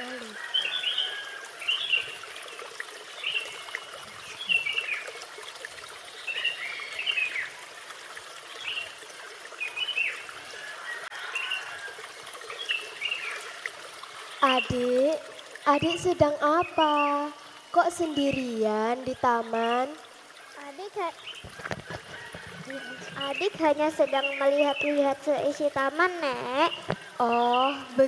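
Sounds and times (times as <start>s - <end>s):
water trickling: 0.0s - 28.0s
birds chirping: 3.2s - 5.2s, 14.3s - 28.0s.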